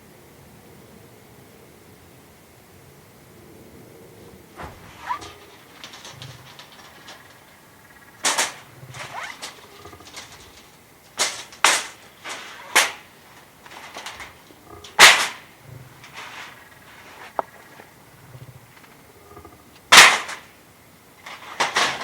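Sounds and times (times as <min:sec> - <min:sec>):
sharp cracks and knocks: 0:04.6 - 0:16.6, 0:19.8 - 0:20.6, 0:21.2 - 0:22.0.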